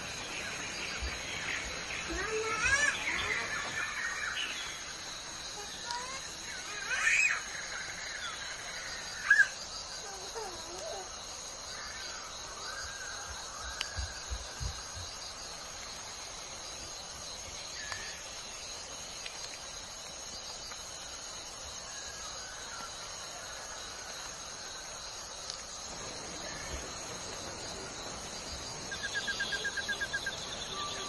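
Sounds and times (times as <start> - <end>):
bird calls: 0.0 - 15.4, 26.0 - 31.0
crickets chirring: 0.0 - 31.0.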